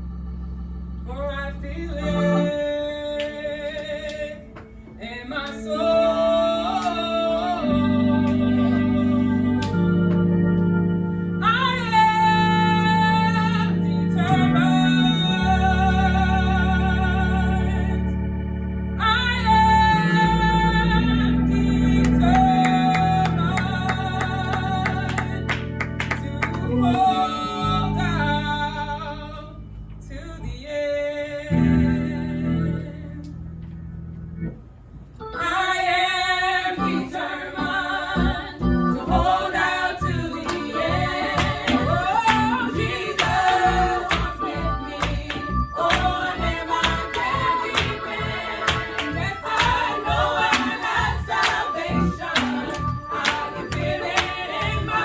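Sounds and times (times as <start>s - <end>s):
organ chords: 0.0s - 55.0s
choir singing held notes: 3.7s - 18.1s, 19.4s - 28.9s, 35.3s - 55.0s.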